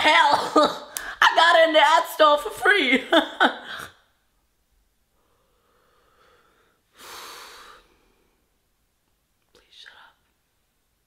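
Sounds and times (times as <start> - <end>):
person exhaling: 5.2 - 8.4.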